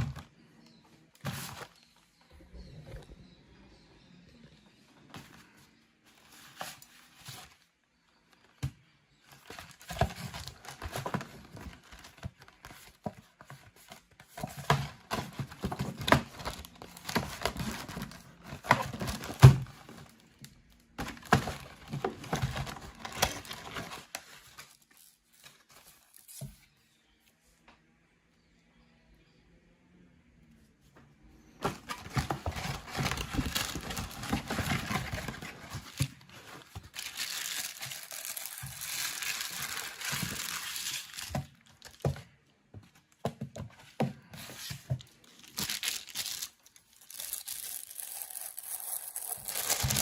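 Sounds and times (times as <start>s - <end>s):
packaging crinkling and tearing: 20.9s - 26.3s, 31.6s - 42.1s, 44.6s - 50.0s.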